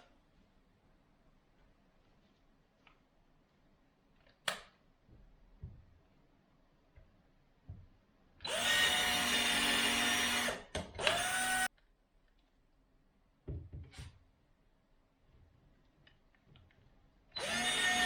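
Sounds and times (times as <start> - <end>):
power drill whining: 8.4 - 11.7, 17.4 - 18.0.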